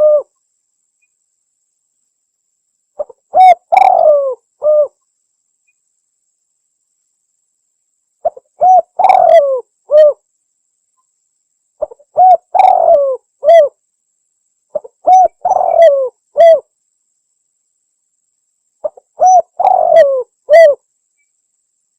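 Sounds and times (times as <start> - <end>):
dove cooing: 0.0 - 0.3, 3.0 - 5.0, 8.2 - 10.2, 11.8 - 13.8, 14.7 - 16.6, 18.8 - 20.8.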